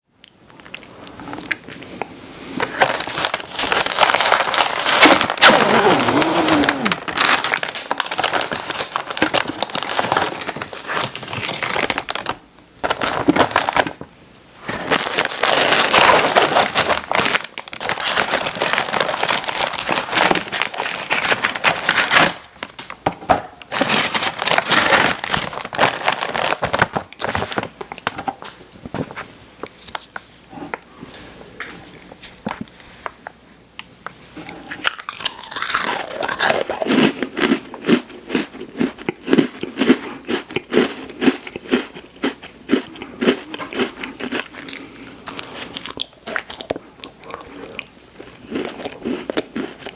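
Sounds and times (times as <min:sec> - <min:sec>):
plastic packaging crinkling: 0:02.6 - 0:23.0, 0:23.7 - 0:29.2.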